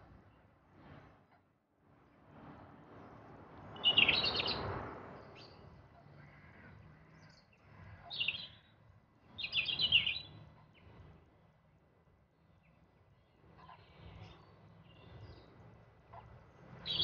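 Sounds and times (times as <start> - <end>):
songbird chirping: 9.4 - 10.4.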